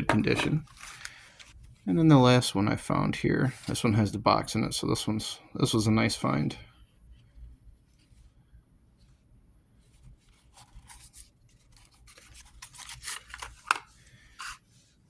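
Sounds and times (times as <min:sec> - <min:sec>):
rubbing and scraping of handling: 0:00.0 - 0:02.1, 0:09.0 - 0:15.0.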